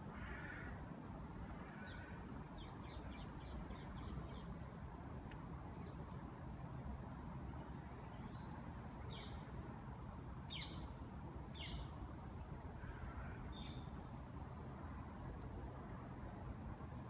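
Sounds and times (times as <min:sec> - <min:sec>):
faint low outdoor rumble: 0:00.0 - 0:17.0
small bird chirping: 0:10.5 - 0:12.0.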